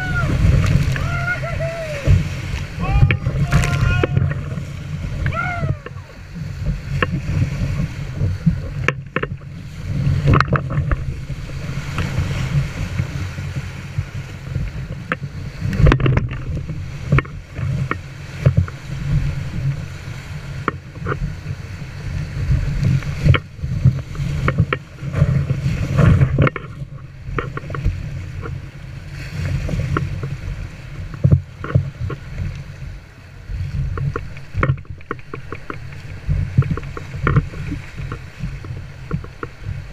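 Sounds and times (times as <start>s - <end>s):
sharp splashes: 0.0s - 6.2s
low rumble on microphone: 0.0s - 39.9s
water rushing against boat: 0.0s - 39.9s.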